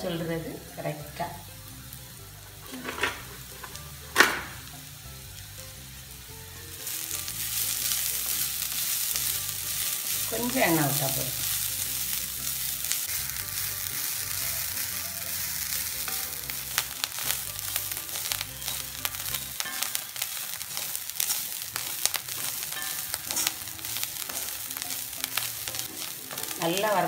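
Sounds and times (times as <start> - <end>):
coconut sizzling in a wok: 0.0 - 27.0
wooden spatula scraping a pan: 17.2 - 27.0.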